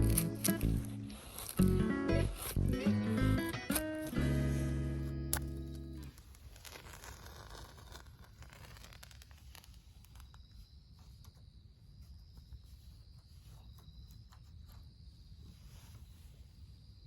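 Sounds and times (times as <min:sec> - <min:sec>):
faint insects trilling: 0:07.4 - 0:17.0.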